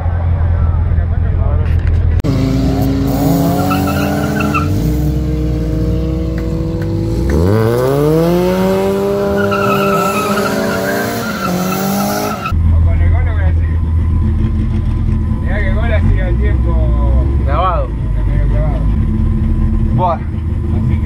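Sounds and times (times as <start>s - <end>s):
drag car engine revving: 2.2s - 12.7s
tyre squeal: 3.4s - 4.9s, 9.2s - 12.5s.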